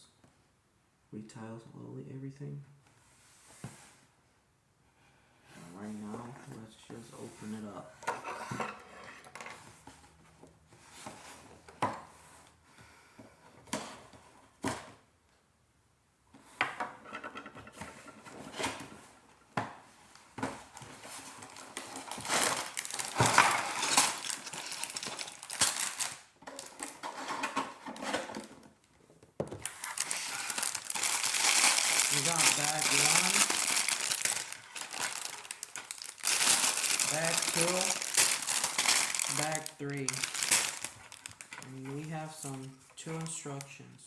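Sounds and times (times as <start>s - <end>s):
plastic bags rattling and crinkling: 20.1s - 28.9s, 29.5s - 43.7s.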